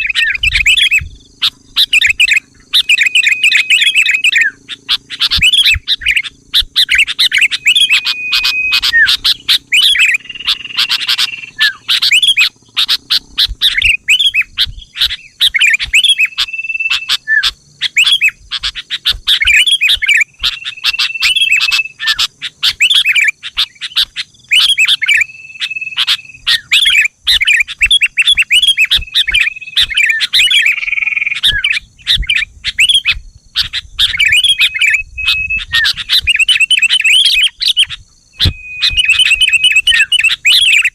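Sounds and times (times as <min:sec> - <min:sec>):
bird chirping song: 0:00.0 - 0:40.9
short whistled bird note: 0:38.4 - 0:40.8.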